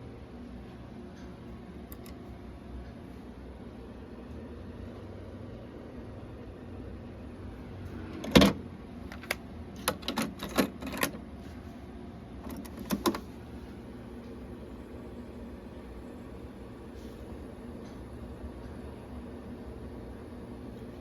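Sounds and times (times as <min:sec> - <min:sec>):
faint steady hum: 0:00.0 - 0:21.0
cassette deck mechanism clicking: 0:01.9 - 0:02.2, 0:08.2 - 0:11.2, 0:12.4 - 0:13.3
cassette deck clunk: 0:12.5 - 0:13.3.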